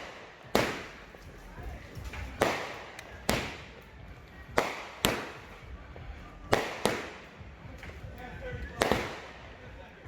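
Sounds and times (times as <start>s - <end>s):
fireworks bangs echoing: 0.0s - 1.2s, 2.2s - 3.8s, 4.5s - 5.6s, 6.5s - 7.4s, 8.7s - 9.7s.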